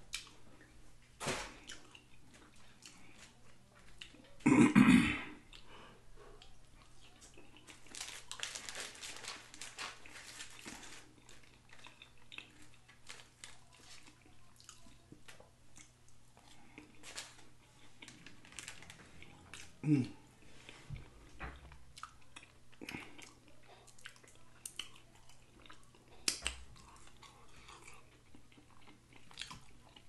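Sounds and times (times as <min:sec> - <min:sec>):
chewing and crunching food: 0:00.0 - 0:04.5, 0:05.4 - 0:30.0
paper liner crinkling: 0:07.6 - 0:12.0, 0:12.6 - 0:14.5, 0:16.8 - 0:19.7.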